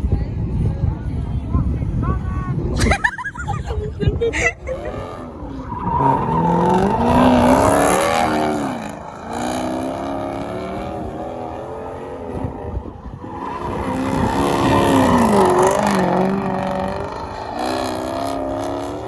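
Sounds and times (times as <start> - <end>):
truck engine revving: 4.3 - 19.0.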